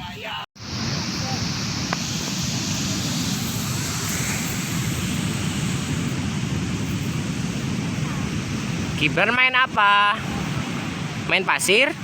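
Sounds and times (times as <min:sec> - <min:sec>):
wind rumble on microphone: 0:00.0 - 0:12.0
ocean surf breaking: 0:00.6 - 0:12.0.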